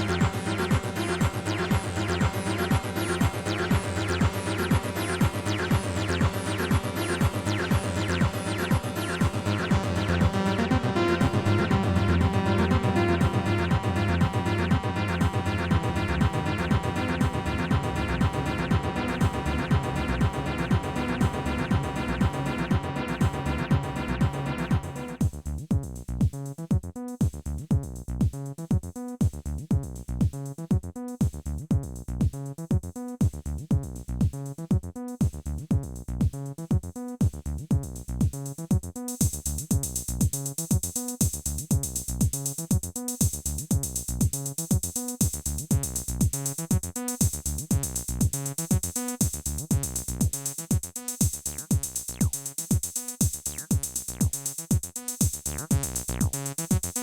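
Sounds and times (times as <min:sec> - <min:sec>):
synth bass line: 0:00.0 - 0:25.8, 0:51.4 - 0:52.4, 0:53.4 - 0:54.4, 0:55.4 - 0:57.0
drum machine kick: 0:00.0 - 0:57.0
bright hi-hat: 0:38.3 - 0:57.0.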